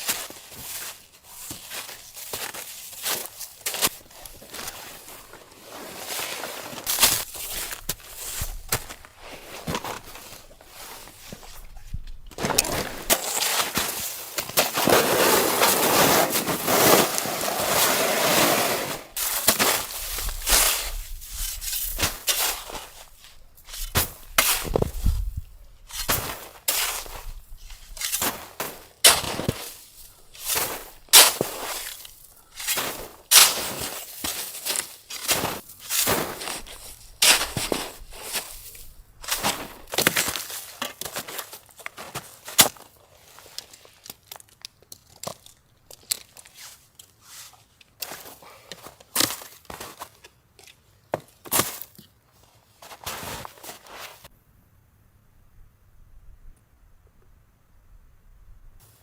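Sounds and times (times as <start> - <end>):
footsteps crunching in snow: 0.0 - 44.0, 51.2 - 54.3.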